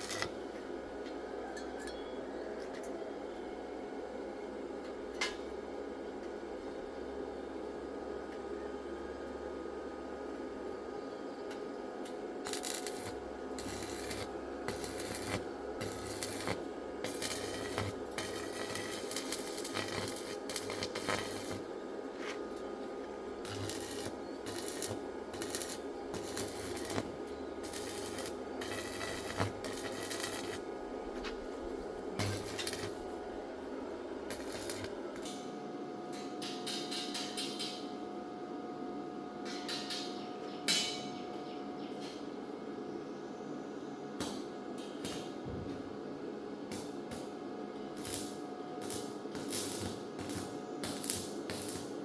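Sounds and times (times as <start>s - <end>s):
steady low hum: 3.1s - 36.6s.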